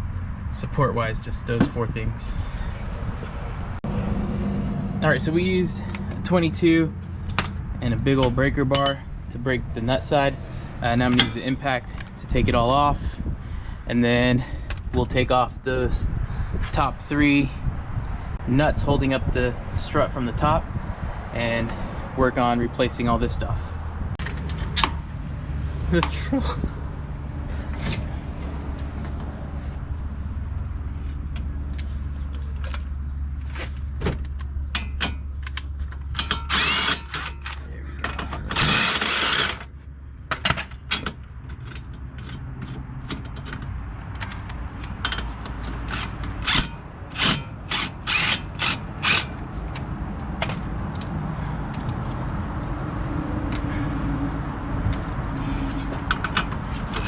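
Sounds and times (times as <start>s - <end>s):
metal tools knocking: 8.2s - 9.3s, 11.0s - 12.1s
ratchet wrench turning: 36.1s - 37.6s, 38.6s - 39.7s, 42.2s - 49.4s.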